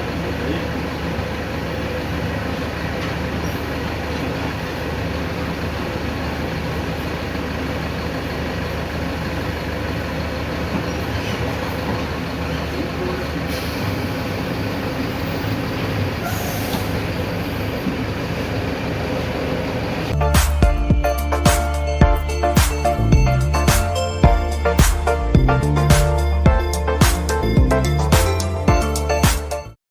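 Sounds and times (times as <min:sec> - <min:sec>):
bus diesel engine hum: 0:00.0 - 0:29.8
short air hisses: 0:16.2 - 0:17.0.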